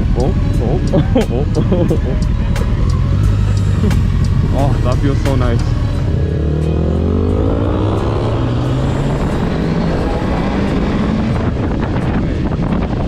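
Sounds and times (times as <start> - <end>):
motorcycle engine speeding up: 0.0 - 13.0
wind rush: 7.8 - 13.0.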